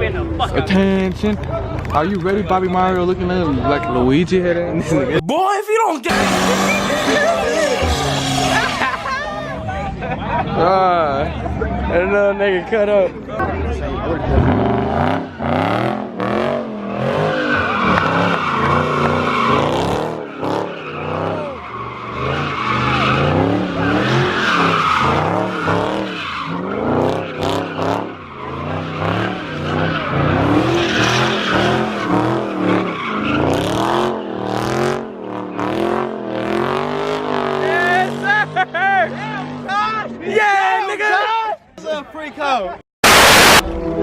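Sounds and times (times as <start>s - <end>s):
tires squealing on pavement: 6.1s - 9.9s, 14.0s - 40.4s
car engine revving: 6.1s - 11.8s, 13.4s - 40.2s, 43.0s - 44.0s.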